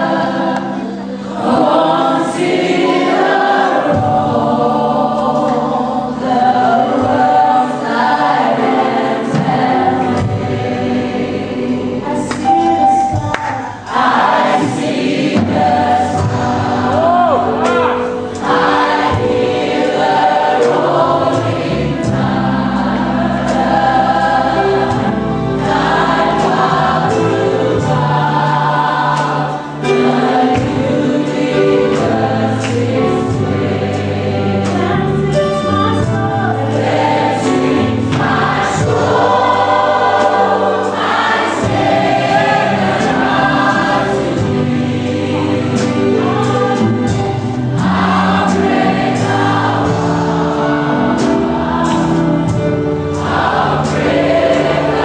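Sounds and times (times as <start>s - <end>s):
choir singing gospel song: 0.0s - 55.0s
band with bass and beat: 12.3s - 55.0s.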